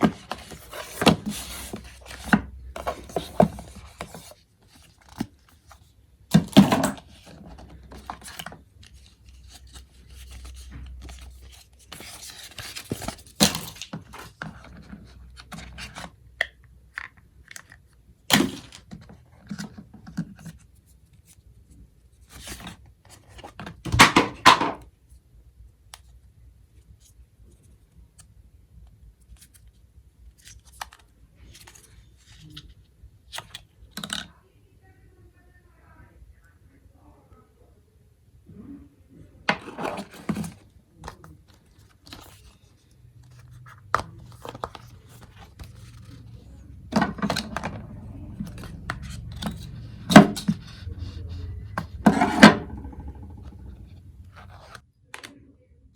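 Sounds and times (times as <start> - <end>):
cardboard and paper rustling: 0.0 - 16.2, 16.9 - 24.7, 29.1 - 34.2, 39.5 - 55.3.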